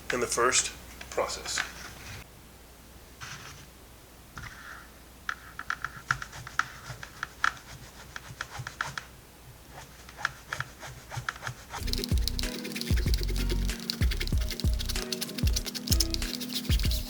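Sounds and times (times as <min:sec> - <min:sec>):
hand tool scraping: 0:09.7 - 0:17.0.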